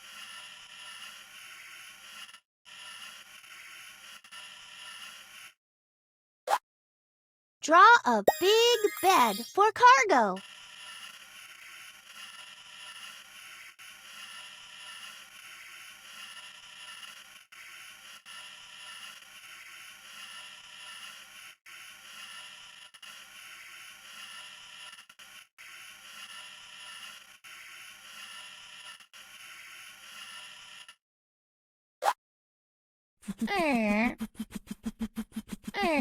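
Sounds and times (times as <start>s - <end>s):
pen scraping across paper: 0.0s - 5.6s, 10.4s - 30.9s, 33.3s - 36.0s.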